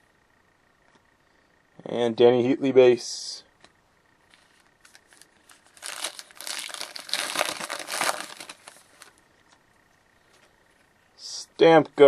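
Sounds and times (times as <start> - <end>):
plastic foil wrapper crinkling: 4.8 - 9.2.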